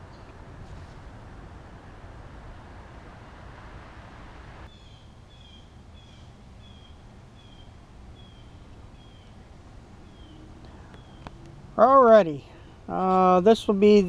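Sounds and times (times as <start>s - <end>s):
outdoor background noise: 0.0s - 14.0s
bird chirping: 4.7s - 9.4s, 10.0s - 11.4s.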